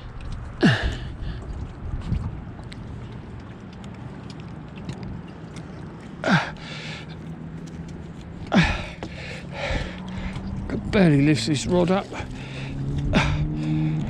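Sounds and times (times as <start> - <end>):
wind buffeting microphone: 0.0 - 7.0, 8.3 - 14.0
person groaning breaths: 0.6 - 1.4, 6.2 - 7.1, 8.5 - 10.4, 12.1 - 14.0.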